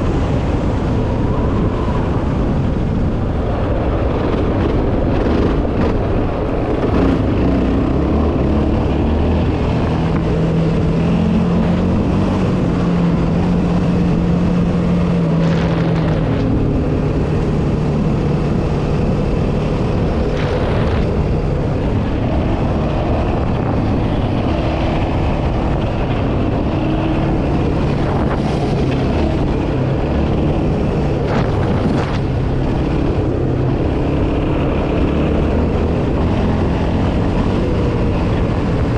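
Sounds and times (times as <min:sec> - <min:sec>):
quad bike engine running: 0:03.5 - 0:38.9.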